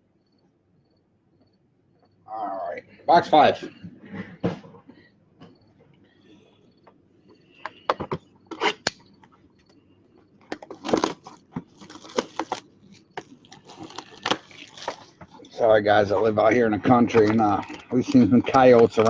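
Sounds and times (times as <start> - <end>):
plastic wrapping tearing and crinkling: 10.5 - 15.6, 17.0 - 19.0.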